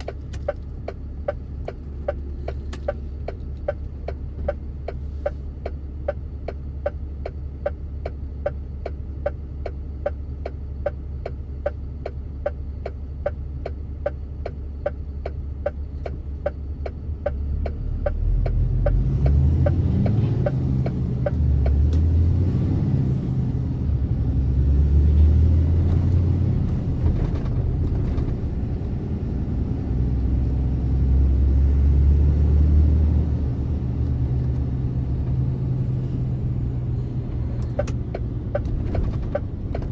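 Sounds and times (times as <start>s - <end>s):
turn signal relay ticking: 0.0s - 22.1s, 37.2s - 39.9s
truck engine: 0.0s - 39.9s.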